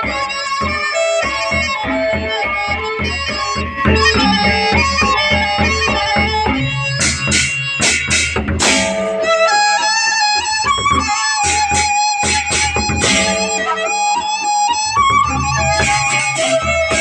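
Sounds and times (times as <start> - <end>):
bamboo flute melody: 0.0 - 17.0
cymbals clashing: 0.0 - 17.0
large drums beating: 3.1 - 9.4, 12.6 - 13.7, 14.9 - 17.0.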